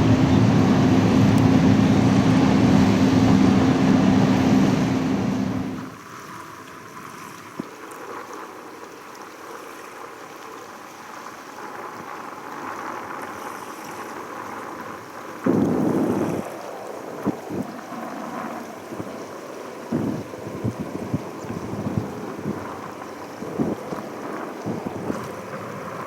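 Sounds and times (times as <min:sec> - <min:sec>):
distant jet engine roar: 0:00.0 - 0:06.0
wind on microphone: 0:00.0 - 0:06.0, 0:14.8 - 0:26.0.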